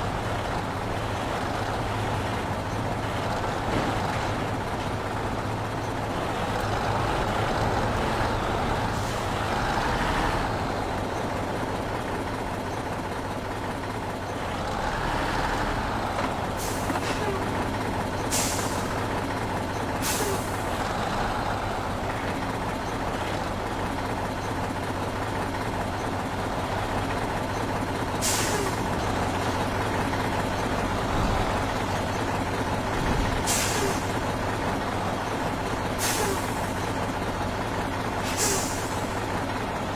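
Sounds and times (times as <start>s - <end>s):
heavy truck engine running: 0.0s - 39.9s
air brakes hissing: 18.3s - 19.0s, 20.0s - 20.9s, 28.2s - 29.0s, 33.4s - 34.2s, 36.0s - 36.9s, 38.2s - 39.2s.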